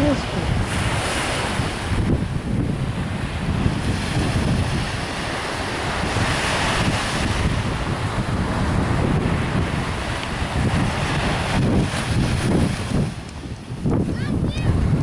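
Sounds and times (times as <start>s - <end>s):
ocean surf rushing: 0.0s - 15.0s
wind buffeting the microphone: 0.0s - 15.0s.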